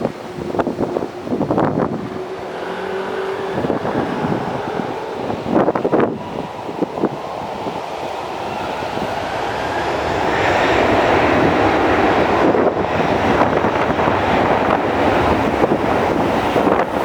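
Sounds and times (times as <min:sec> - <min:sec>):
jet airliner engine roar: 0:00.0 - 0:17.0.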